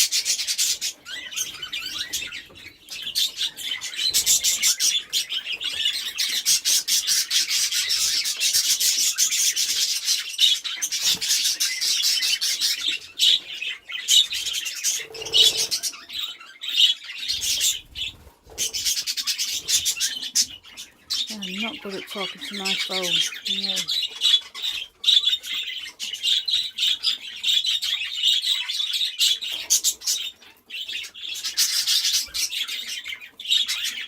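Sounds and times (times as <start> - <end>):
budgerigars chattering: 0.0 - 34.0.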